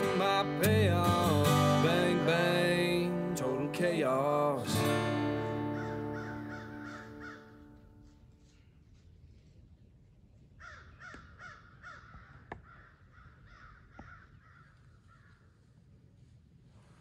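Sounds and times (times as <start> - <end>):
faint bird calls: 5.4 - 8.8, 10.6 - 15.8.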